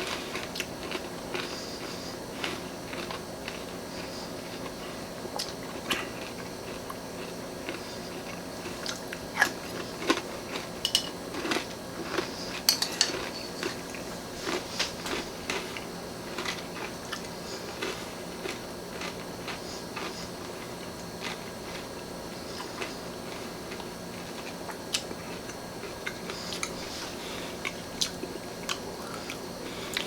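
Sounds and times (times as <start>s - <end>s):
person chewing crunchy cereal: 0.0s - 30.0s
spoon clicking against bowl: 12.7s - 13.5s.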